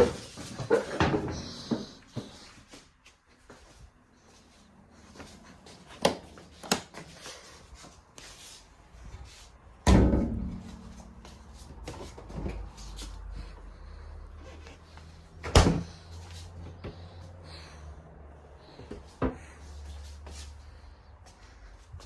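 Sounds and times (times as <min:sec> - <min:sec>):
knocks and thumps: 0:09.9 - 0:11.4.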